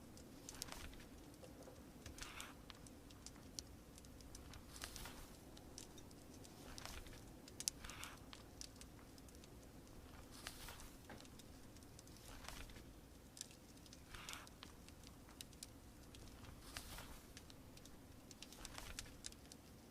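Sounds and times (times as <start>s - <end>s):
fire crackling and popping: 0.0s - 19.9s
rain hiss: 0.0s - 19.9s
pages turning: 4.5s - 5.9s, 6.5s - 8.2s, 10.1s - 11.4s, 12.0s - 12.9s, 16.2s - 17.4s, 18.4s - 19.3s.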